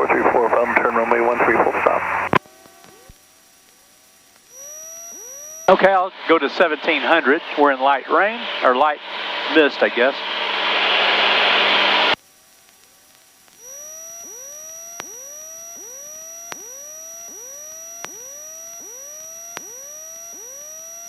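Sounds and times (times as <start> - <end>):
steady high electronic whine: 0.0 - 12.2, 13.3 - 21.0
rising electronic chirps: 4.4 - 6.1, 13.6 - 21.0
faint click: 12.6 - 21.0.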